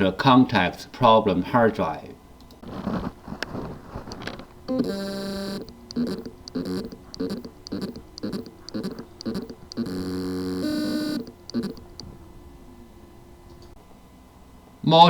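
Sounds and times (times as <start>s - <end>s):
hard drive whine: 2.5s - 14.5s
hard drive buzzing pulse: 4.0s - 12.7s.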